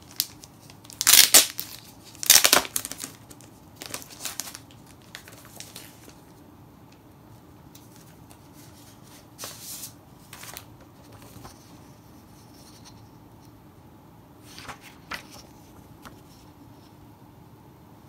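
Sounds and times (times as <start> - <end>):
paper and envelopes rustling: 0.0 - 6.4, 7.7 - 13.1, 14.4 - 16.7.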